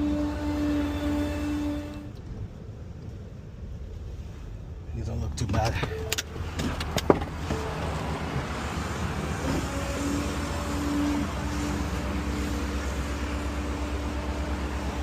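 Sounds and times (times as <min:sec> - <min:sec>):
garbage truck engine rumbling: 0:05.9 - 0:15.0.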